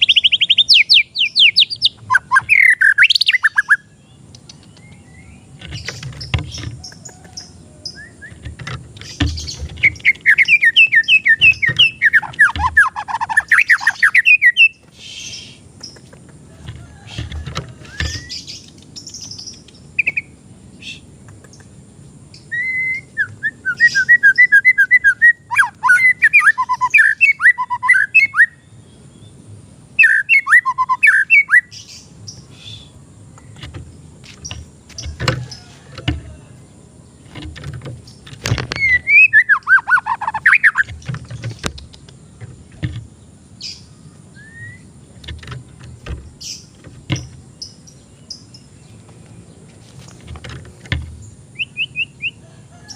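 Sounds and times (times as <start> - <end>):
bird singing whistled notes: 0.0 - 8.4, 9.2 - 15.6, 22.4 - 29.4, 30.0 - 33.6, 38.7 - 41.1, 43.6 - 45.0, 51.2 - 52.9
scattered clicks: 21.2 - 21.7.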